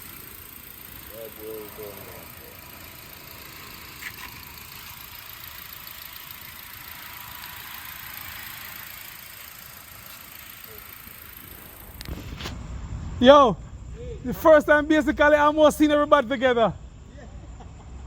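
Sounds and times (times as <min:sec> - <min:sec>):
car engine idling: 0:00.0 - 0:13.2.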